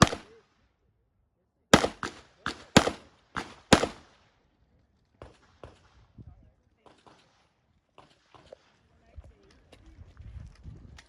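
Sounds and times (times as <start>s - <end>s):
pistol shots inside a car: 1.8s - 4.0s.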